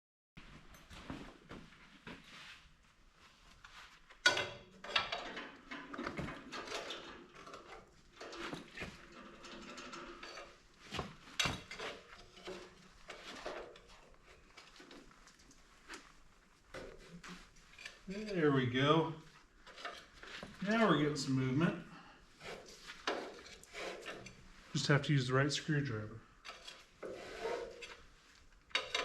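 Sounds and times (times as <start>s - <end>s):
steel tools clanking and scraping: 4.2s - 10.6s, 11.4s - 14.1s, 19.7s - 20.2s, 22.5s - 24.4s, 26.4s - 28.0s, 28.7s - 29.0s.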